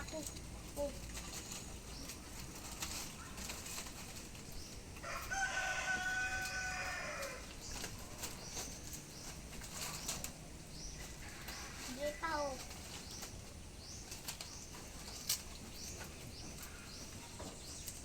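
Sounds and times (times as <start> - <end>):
rooster crowing: 5.0 - 7.5.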